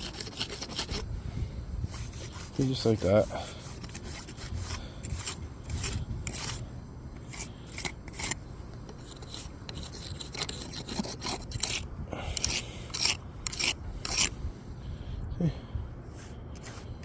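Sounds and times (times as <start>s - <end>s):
jointer scraping mortar: 0.0s - 1.0s, 2.2s - 14.3s.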